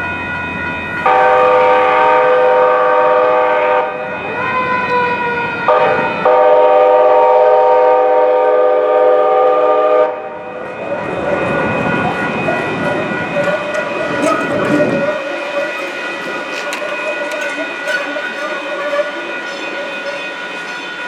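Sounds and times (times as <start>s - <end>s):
train air horn chord: 1.1s - 4.1s, 5.7s - 10.4s.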